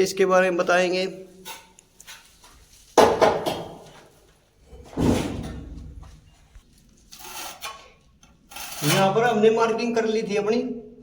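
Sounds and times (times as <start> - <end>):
heavy masonry knocks: 3.0 - 4.0.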